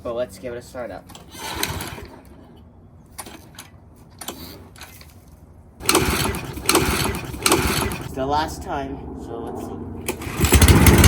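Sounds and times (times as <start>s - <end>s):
lawnmower recoil starter pull: 1.1s - 2.3s, 5.8s - 8.0s
lawnmower engine turning over: 1.1s - 2.4s, 5.8s - 8.1s, 10.2s - 11.0s.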